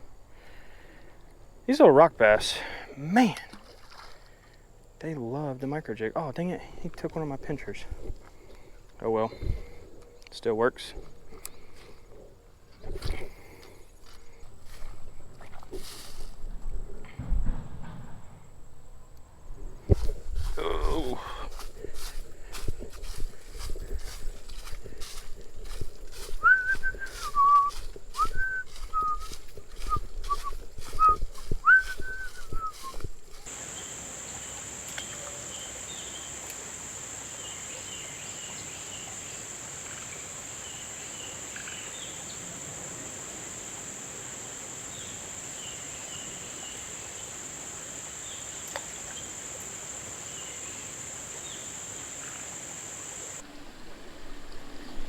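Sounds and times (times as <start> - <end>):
steady outdoor hiss: 0.0 - 55.0
footsteps on creek rocks: 1.8 - 4.6, 6.5 - 16.9, 19.6 - 33.7
gliding whistled notes: 26.4 - 33.0.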